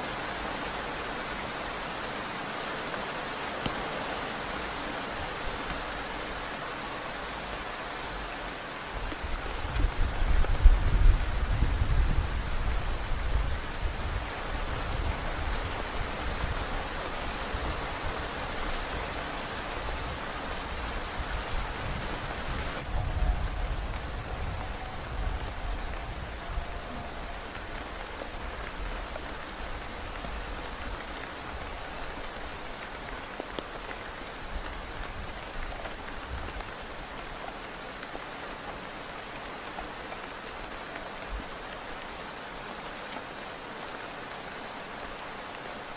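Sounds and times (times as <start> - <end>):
heavy rain: 0.0 - 45.9
wind rumbling: 8.8 - 33.1.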